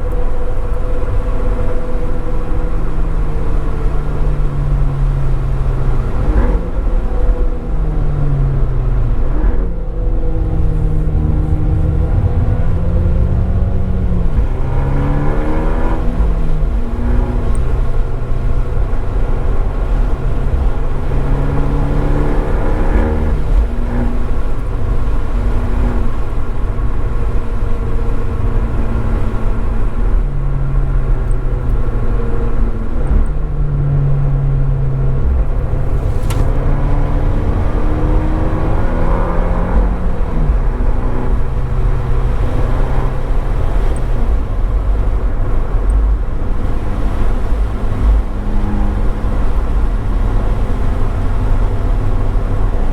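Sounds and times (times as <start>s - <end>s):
car engine accelerating: 0.0s - 52.9s
road noise: 0.0s - 52.9s.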